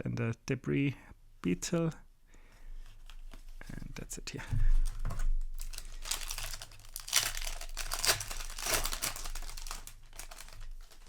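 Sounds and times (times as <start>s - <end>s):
foil wrapper crinkling: 4.8s - 11.0s.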